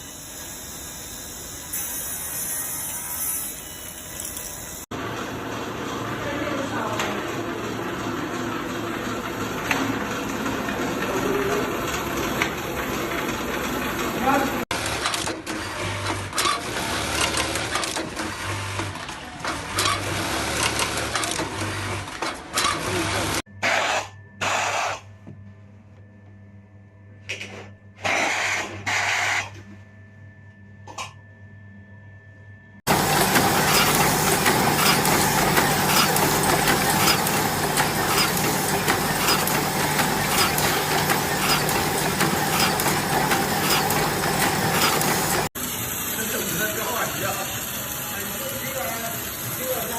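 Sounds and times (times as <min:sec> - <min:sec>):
machine humming and clattering: 0:00.0 - 0:23.4, 0:32.9 - 0:49.9
small machine clattering: 0:32.9 - 0:45.5.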